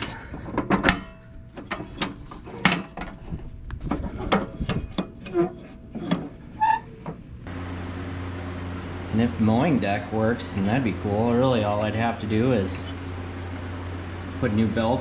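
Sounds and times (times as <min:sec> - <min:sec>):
metal parts clanking: 0:00.0 - 0:07.2.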